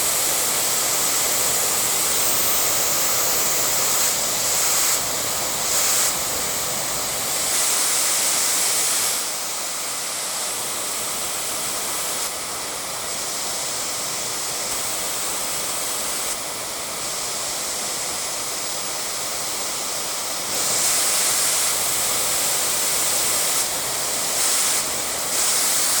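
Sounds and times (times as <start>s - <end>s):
hair dryer blowing air: 0.0s - 26.0s.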